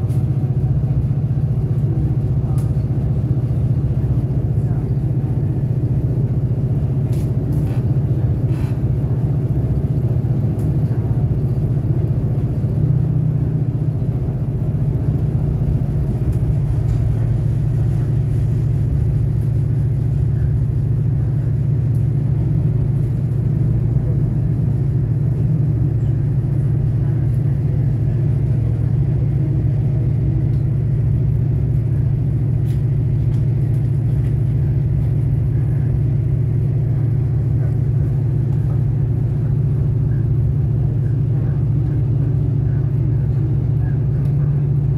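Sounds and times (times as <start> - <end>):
railcar engine drone: 0.0 - 44.9
wheels rumbling on track: 0.0 - 44.9.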